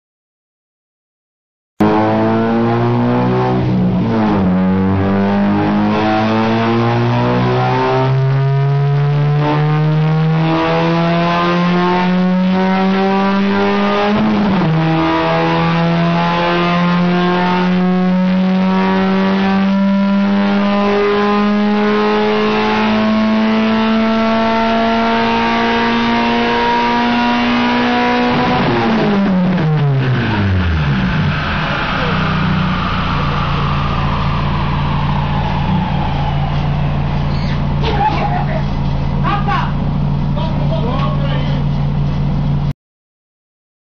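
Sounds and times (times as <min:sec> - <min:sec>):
car engine at full throttle: 0:01.8 - 0:42.7
high whine of rollers: 0:29.0 - 0:41.9.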